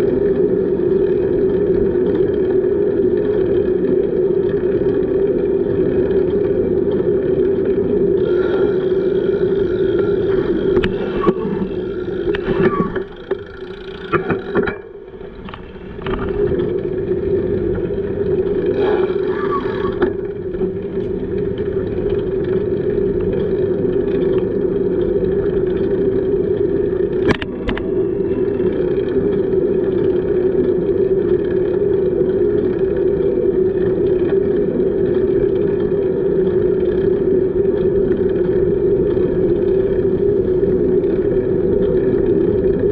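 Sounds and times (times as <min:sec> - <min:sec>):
bicycle riding hum: 0:00.0 - 0:42.9.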